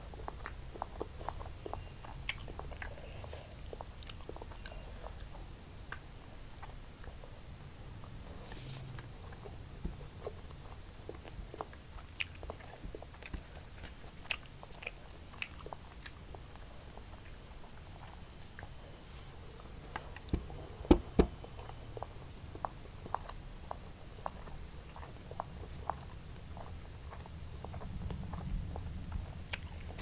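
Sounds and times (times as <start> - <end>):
close chewing with mouth clicks: 0.0 - 7.4, 8.1 - 30.0
knocks: 20.3 - 21.4.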